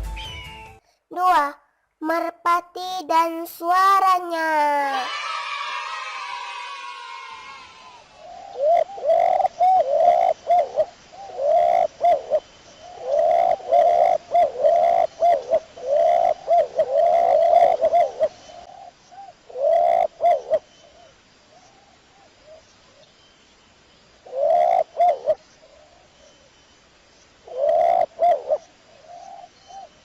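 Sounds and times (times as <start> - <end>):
pigeon cooing: 8.3 - 12.4, 13.0 - 18.8, 19.5 - 20.6, 24.3 - 25.4, 27.5 - 28.6.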